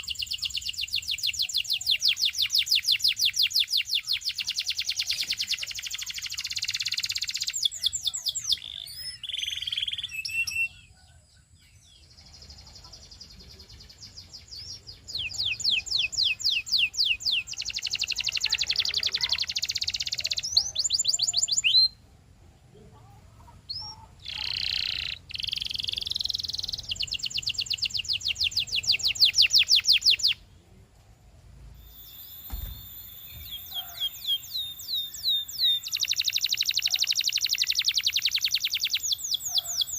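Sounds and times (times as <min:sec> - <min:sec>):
canary singing trills: 0:00.0 - 0:22.0, 0:23.4 - 0:30.5, 0:31.8 - 0:39.9.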